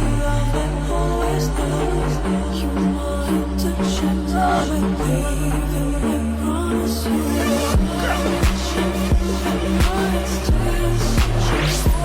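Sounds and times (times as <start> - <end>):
electronic music: 7.0 - 12.0.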